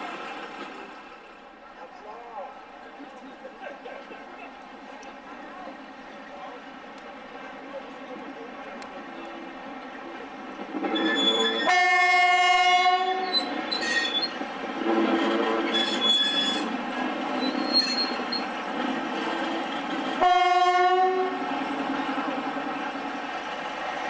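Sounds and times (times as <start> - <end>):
locomotive whistle blasts: 10.9 - 14.4, 15.4 - 16.7, 17.4 - 18.4, 20.2 - 21.4.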